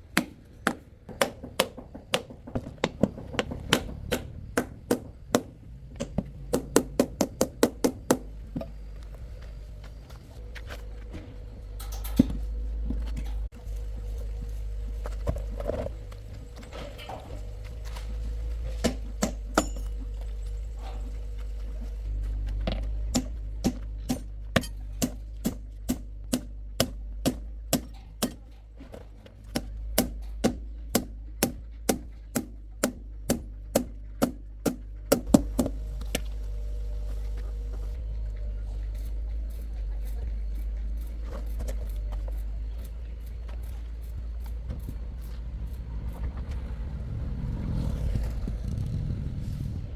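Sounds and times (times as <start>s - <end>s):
low steady hum: 0.0s - 49.9s
sharp knocks: 0.1s - 8.3s.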